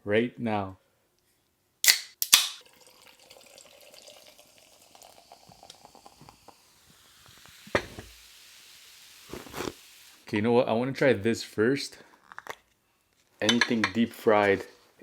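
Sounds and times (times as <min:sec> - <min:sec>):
food containers crackling and rustling: 0:09.3 - 0:09.8.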